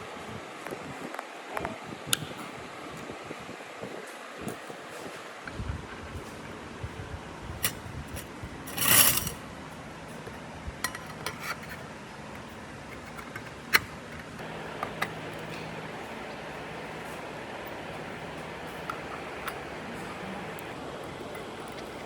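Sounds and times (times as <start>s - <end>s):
metal parts clicking and knocking: 7.6s - 9.4s
metal scraping: 7.6s - 9.4s
steady low hum: 14.0s - 22.0s.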